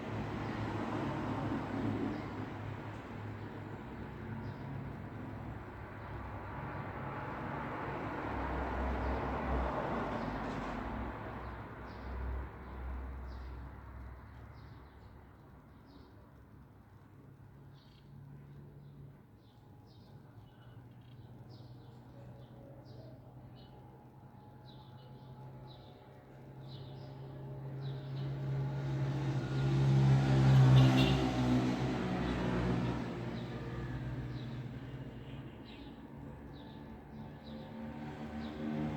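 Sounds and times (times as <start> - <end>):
road vehicle passing: 26.6 - 35.3, 36.0 - 38.9.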